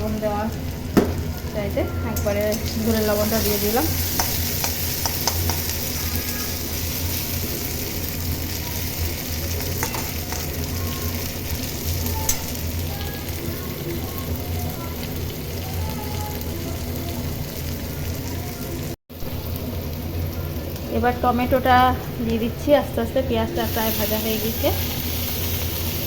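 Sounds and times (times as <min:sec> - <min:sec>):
onions sizzling in oil: 0:00.0 - 0:26.0
spatula scraping and clicking: 0:04.1 - 0:05.7.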